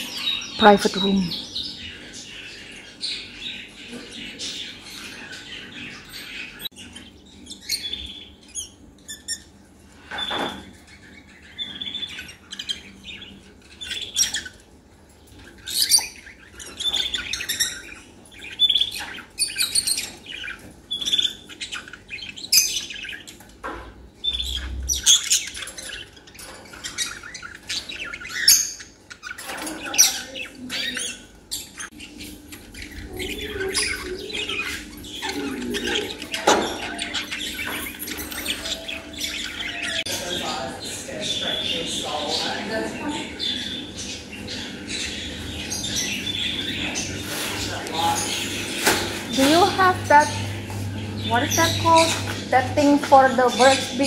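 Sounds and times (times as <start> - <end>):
caged birds chirping and squawking: 0.0 - 54.0.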